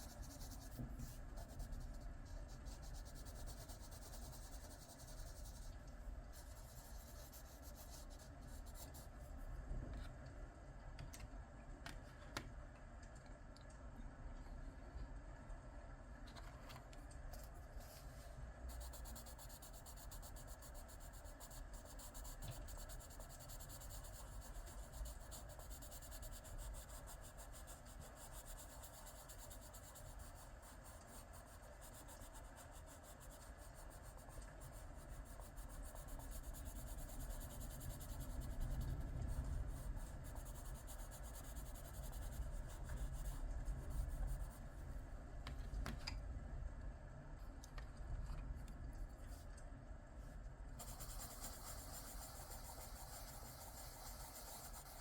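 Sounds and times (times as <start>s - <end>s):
pencil scratching on paper: 0.0s - 9.2s, 18.7s - 44.6s, 50.8s - 55.0s.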